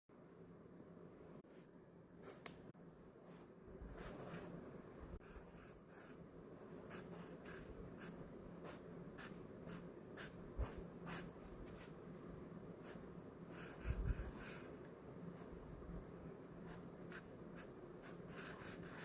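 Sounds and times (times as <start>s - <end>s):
pen scratching on paper: 6.8s - 12.0s, 12.8s - 14.7s, 16.6s - 19.0s.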